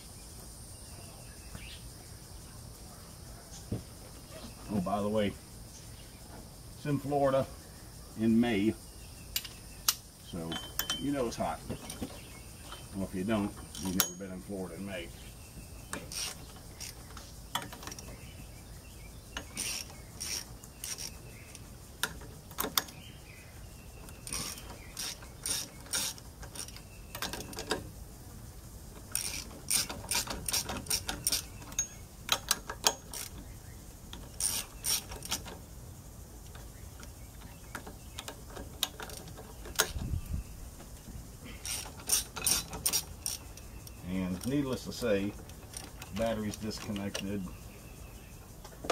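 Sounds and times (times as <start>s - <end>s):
ratchet wrench clicking: 15.9s - 18.1s, 19.4s - 22.9s, 24.2s - 27.7s, 29.0s - 33.4s, 34.2s - 35.6s, 41.6s - 44.6s.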